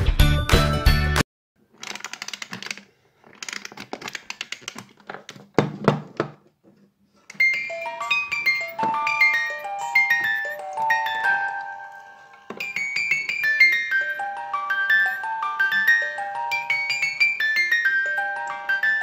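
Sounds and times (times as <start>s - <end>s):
background music: 0.0s - 1.2s, 7.7s - 19.0s
music box being handled: 1.8s - 5.5s, 7.2s - 18.0s
music box tune: 7.4s - 19.0s.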